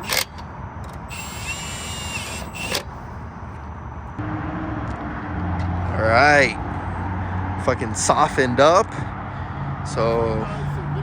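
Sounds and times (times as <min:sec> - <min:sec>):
high-pitched whine: 0:00.0 - 0:07.9
car engine idling: 0:00.0 - 0:11.0.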